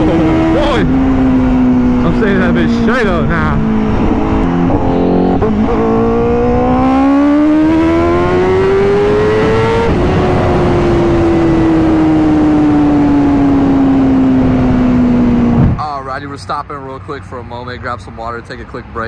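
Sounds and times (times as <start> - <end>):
motorcycle engine accelerating: 0.0 - 15.8.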